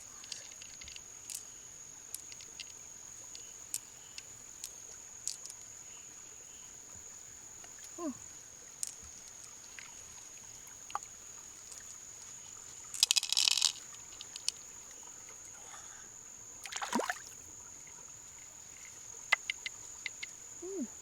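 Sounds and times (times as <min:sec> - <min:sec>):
high-pitched insect trill: 0:00.0 - 0:21.0.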